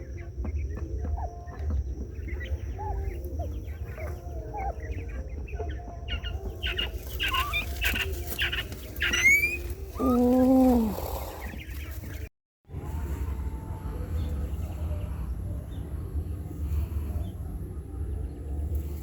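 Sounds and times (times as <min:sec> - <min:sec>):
chickens clucking: 0:00.1 - 0:12.3.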